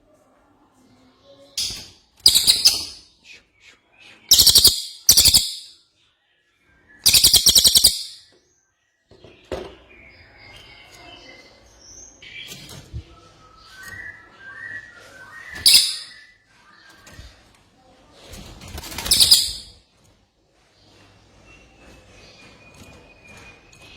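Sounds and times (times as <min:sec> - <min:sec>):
soft bird twittering: 0:01.6 - 0:03.1, 0:04.1 - 0:05.8, 0:06.7 - 0:08.4, 0:09.9 - 0:17.4, 0:18.9 - 0:19.8
songbird singing rapid high notes: 0:04.3 - 0:05.6, 0:07.1 - 0:08.1, 0:15.7 - 0:16.2.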